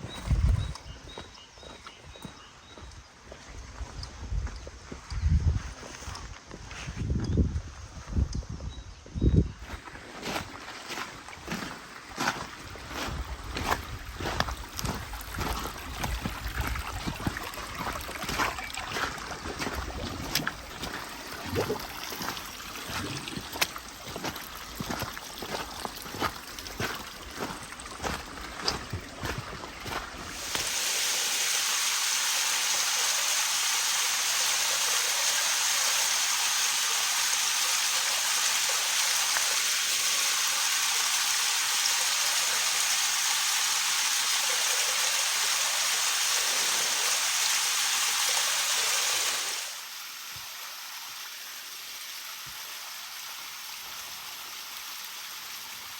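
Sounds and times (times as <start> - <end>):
rushing water: 9.8 - 55.9.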